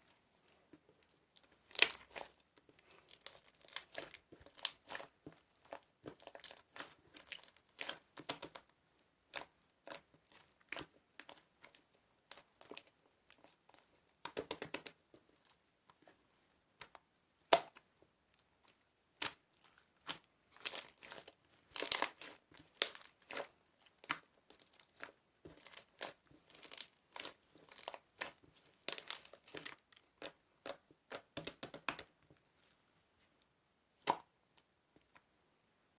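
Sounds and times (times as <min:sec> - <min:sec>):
crinkling and crackling: 0:00.0 - 0:08.7, 0:17.7 - 0:35.4.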